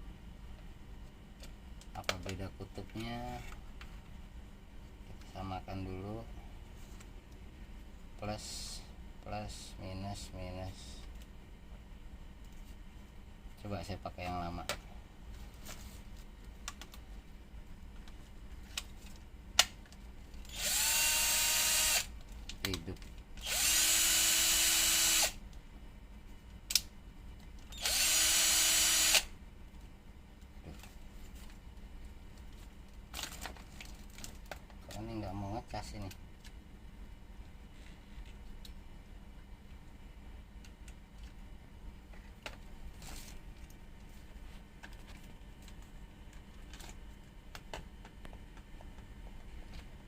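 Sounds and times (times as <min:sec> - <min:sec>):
steady low hum: 0:00.0 - 0:50.0
cordless drill motor spinning: 0:20.5 - 0:22.1, 0:23.4 - 0:25.4, 0:27.7 - 0:29.3.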